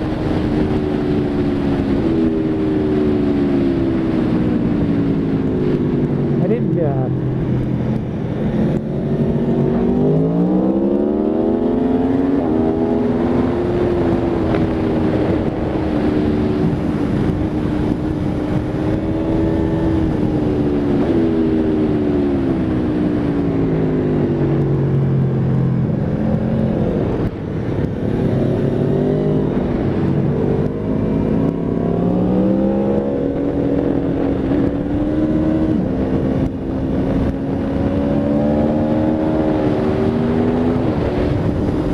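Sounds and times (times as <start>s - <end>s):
motorcycle engine revving hard: 28.1s - 41.9s.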